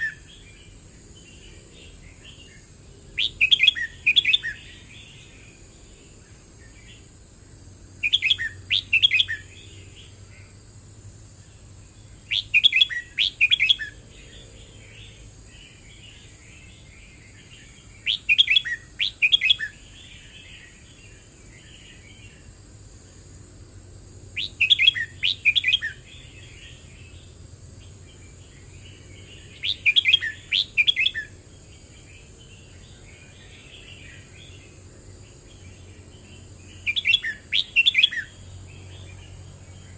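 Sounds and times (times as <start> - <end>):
bird singing short phrases: 0.0 - 2.6, 3.2 - 5.5, 8.0 - 10.5, 12.2 - 22.4, 24.4 - 27.2, 27.8 - 31.4, 35.5 - 39.9
soft bird twittering: 0.0 - 7.1, 8.0 - 10.6, 11.4 - 22.5, 24.4 - 34.8, 35.4 - 39.9.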